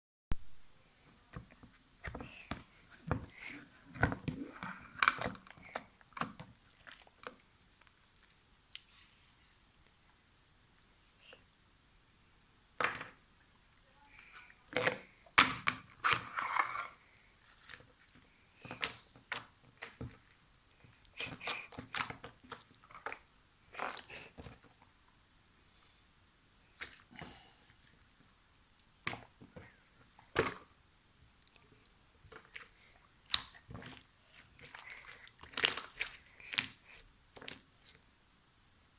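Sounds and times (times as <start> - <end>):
slime squishing and popping: 4.0 - 8.8, 18.7 - 24.8, 32.3 - 38.0.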